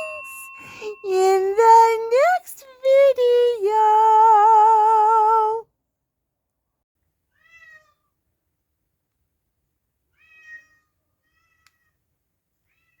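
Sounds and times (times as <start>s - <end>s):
cat meowing: 7.4s - 8.0s, 10.1s - 11.9s.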